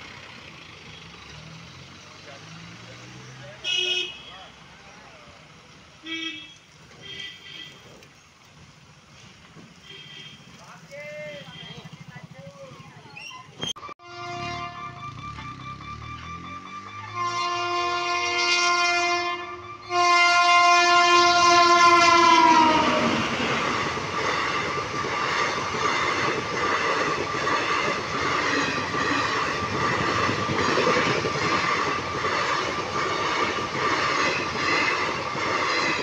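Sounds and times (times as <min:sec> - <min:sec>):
locomotive horn blasts: 0:03.6 - 0:04.5, 0:06.0 - 0:07.9, 0:09.8 - 0:10.6, 0:13.8 - 0:23.2
train coaches rumbling past: 0:06.6 - 0:36.0
wheels clattering over rail joints: 0:23.1 - 0:36.0.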